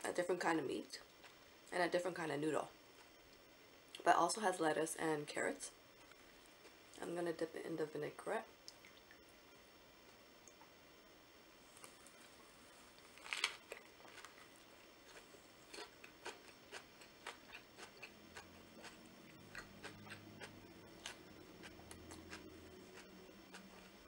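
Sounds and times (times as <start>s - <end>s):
closed-mouth humming: 11.8s - 24.0s
wet chewing with mouth clicks: 13.6s - 24.0s.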